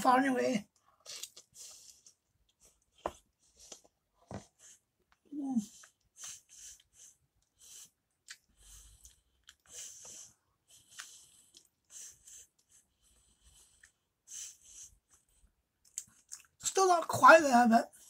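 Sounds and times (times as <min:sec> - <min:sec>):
faint close-up chewing: 0:00.7 - 0:16.6.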